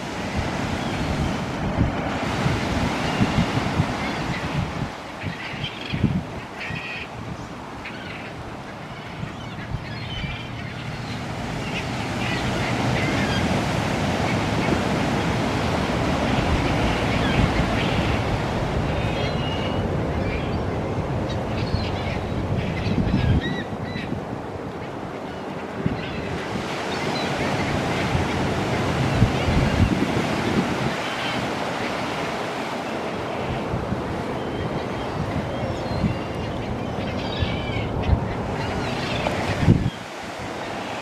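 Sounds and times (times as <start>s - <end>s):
wind buffeting microphone: 0.0s - 7.7s, 9.1s - 25.0s, 25.7s - 32.6s, 33.2s - 40.8s
gull calls: 5.2s - 7.1s.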